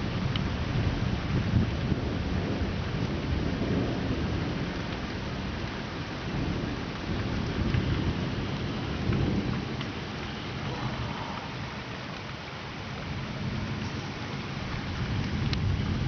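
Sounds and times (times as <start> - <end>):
rain falling: 0.0 - 16.0
thunder rumbling: 0.0 - 16.0.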